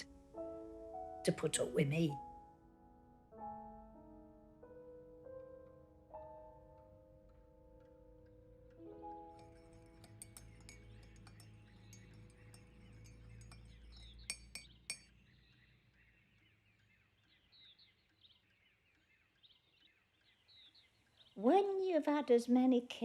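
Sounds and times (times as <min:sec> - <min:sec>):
piano chord: 0:00.0 - 0:13.5
glassy clinking: 0:09.3 - 0:15.2
bird chirps: 0:09.3 - 0:21.6.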